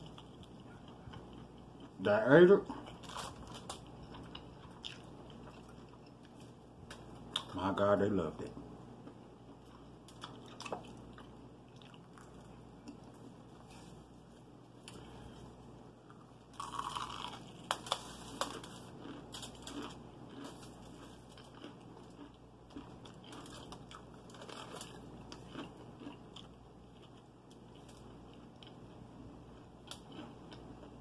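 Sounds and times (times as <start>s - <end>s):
wet chewing: 2.8s - 7.5s, 9.0s - 13.1s, 16.1s - 28.9s
crunchy bites of fried chicken: 16.2s - 31.0s.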